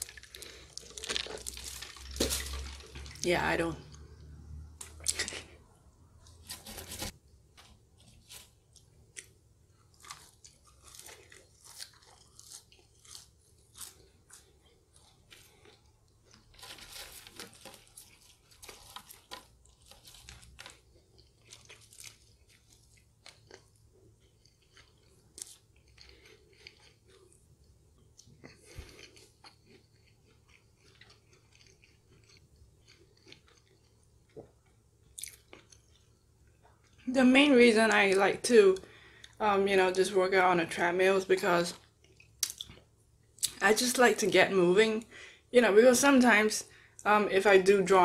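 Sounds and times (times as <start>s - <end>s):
person chewing fries: 0.0s - 3.3s, 3.9s - 37.1s, 41.8s - 43.6s
paper rustling: 6.4s - 7.2s, 16.5s - 20.7s.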